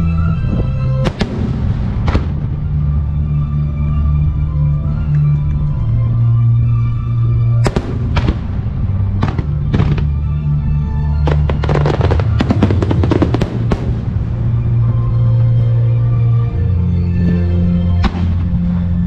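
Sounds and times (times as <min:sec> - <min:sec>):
fireworks bursting: 0:01.0 - 0:02.6, 0:07.6 - 0:10.2, 0:11.3 - 0:14.8.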